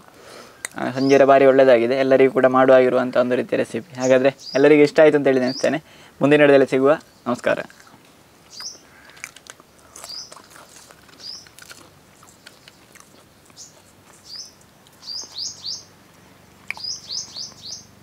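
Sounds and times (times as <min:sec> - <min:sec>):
bird chirping: 0:00.7 - 0:01.5, 0:03.8 - 0:06.1, 0:07.0 - 0:18.0.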